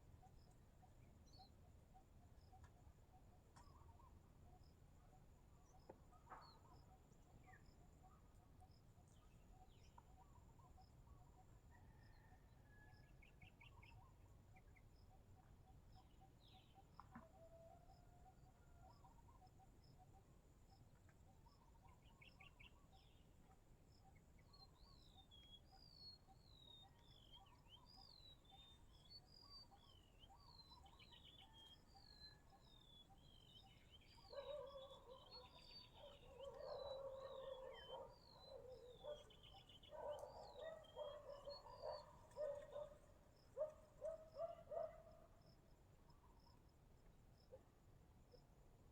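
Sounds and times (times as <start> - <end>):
birds calling: 34.2 - 43.0
insect chirping: 34.3 - 45.6.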